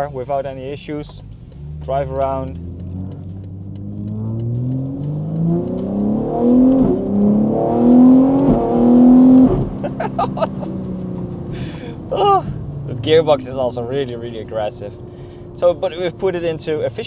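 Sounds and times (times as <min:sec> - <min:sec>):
car engine accelerating hard: 0:00.6 - 0:17.0.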